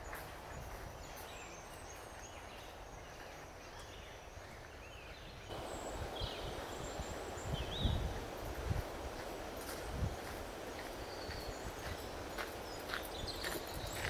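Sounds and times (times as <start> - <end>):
steady background hiss: 0.0 - 14.0
bird chirps: 10.2 - 14.0.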